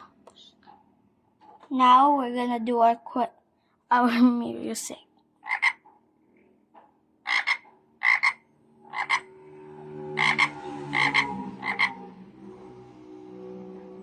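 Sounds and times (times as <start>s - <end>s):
frog croaks from small speaker: 5.4s - 5.8s, 7.2s - 9.3s, 10.1s - 12.1s
soft sustained music chords: 8.6s - 14.0s.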